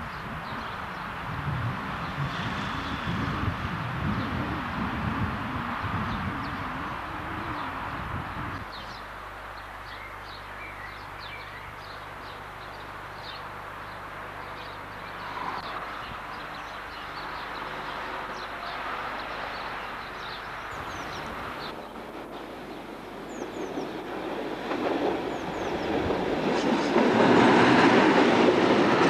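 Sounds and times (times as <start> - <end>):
steady outdoor hiss: 0.0 - 29.0
small birds chirping: 5.8 - 24.2, 24.8 - 26.2.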